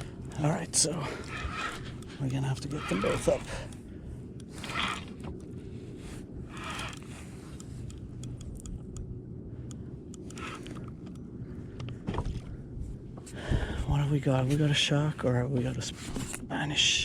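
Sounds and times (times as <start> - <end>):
fishing reel clicks and scrapes: 0.0 - 3.8, 4.4 - 5.5, 6.4 - 8.5, 10.2 - 11.1
low steady rumble: 0.0 - 17.0.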